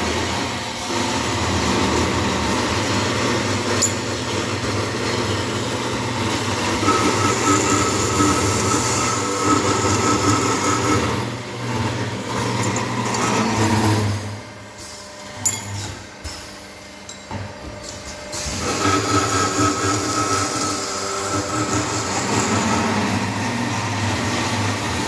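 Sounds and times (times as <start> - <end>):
metal cutting machine hum: 0.0 - 17.2, 18.0 - 25.0
metallic grinding: 6.9 - 14.3.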